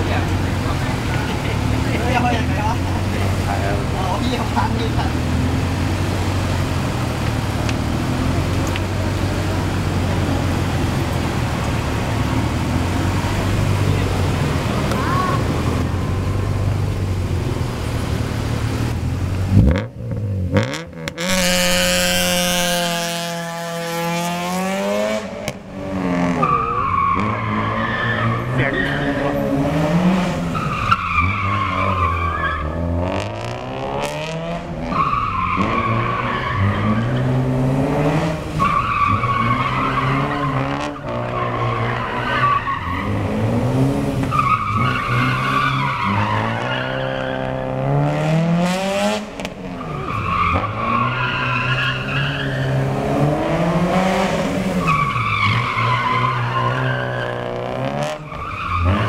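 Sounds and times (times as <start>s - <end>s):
car engine revving hard: 0.0s - 16.5s, 17.4s - 59.0s
tyres squealing: 26.0s - 33.0s, 34.7s - 37.6s, 38.5s - 43.5s, 44.2s - 47.8s, 49.6s - 53.0s, 54.8s - 59.0s.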